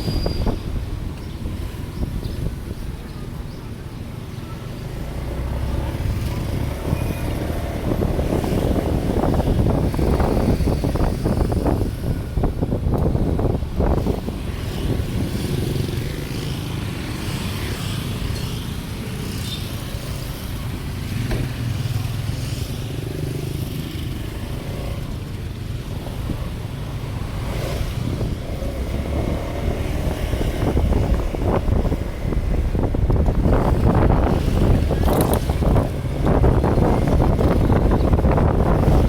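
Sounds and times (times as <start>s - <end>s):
wind buffeting microphone: 0.0s - 3.8s, 4.9s - 22.3s, 23.0s - 39.0s
vehicle low rumble: 24.3s - 39.0s.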